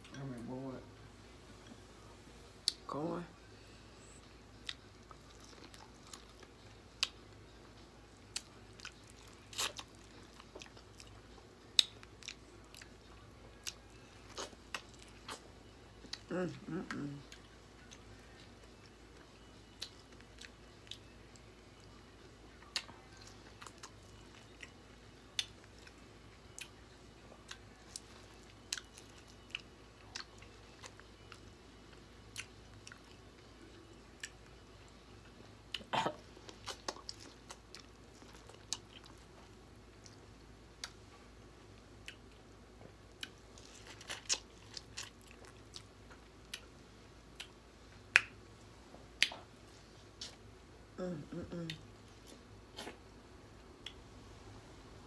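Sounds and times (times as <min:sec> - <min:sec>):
person chewing corn on the cob: 0:04.6 - 0:07.2, 0:08.3 - 0:16.3, 0:22.6 - 0:31.5, 0:32.2 - 0:34.6, 0:36.5 - 0:40.2, 0:43.1 - 0:46.6.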